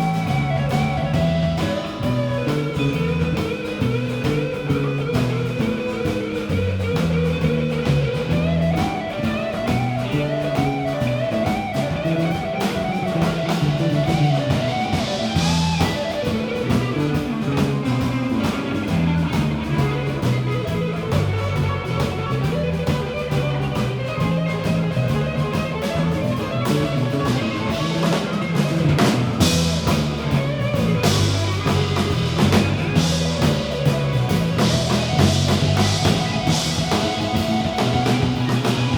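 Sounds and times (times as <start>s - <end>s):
drum kit: 0.0s - 38.9s
electric guitar: 0.0s - 38.9s
walking bass line: 0.0s - 38.9s.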